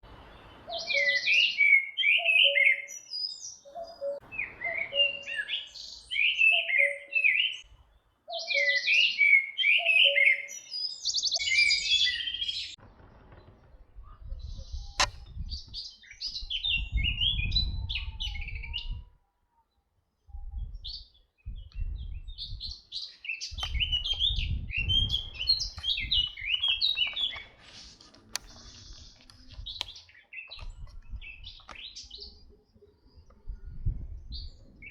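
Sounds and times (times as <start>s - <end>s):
songbirds warbling: 0.1s - 12.8s, 20.6s - 34.9s.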